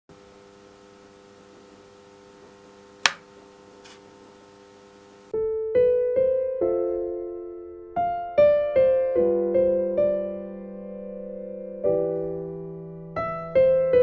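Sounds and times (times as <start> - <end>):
sharp click: 3.0 - 3.2
soft piano music: 5.4 - 14.0.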